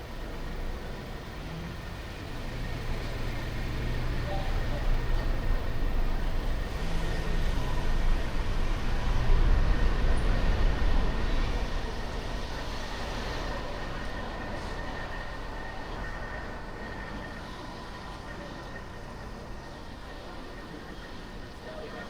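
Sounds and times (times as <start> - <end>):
car engine and road rumble: 0.0 - 13.4.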